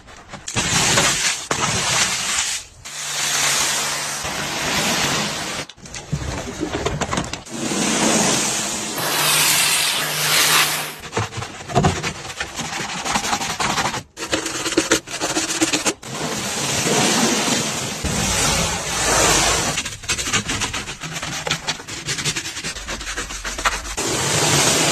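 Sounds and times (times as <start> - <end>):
water spray hissing: 9.0 - 11.0.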